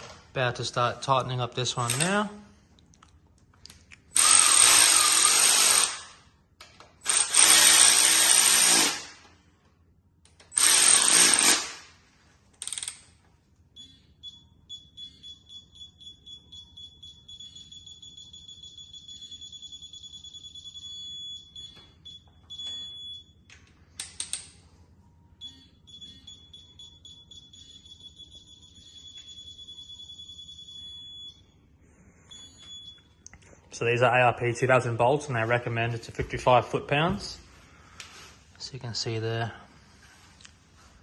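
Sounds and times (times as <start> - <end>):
power tool bursts: 4.2 - 6.2, 7.0 - 9.2, 10.5 - 11.9.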